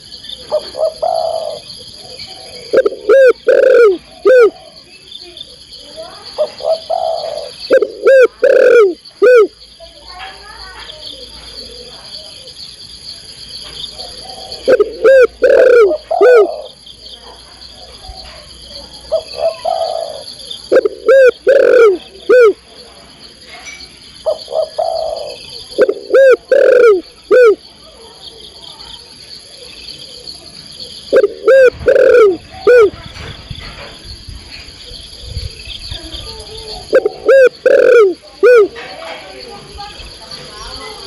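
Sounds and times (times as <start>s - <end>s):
dove cooing: 0.3s - 9.5s, 13.9s - 16.8s, 17.8s - 22.6s, 24.2s - 27.7s, 29.5s - 34.0s, 34.8s - 39.1s.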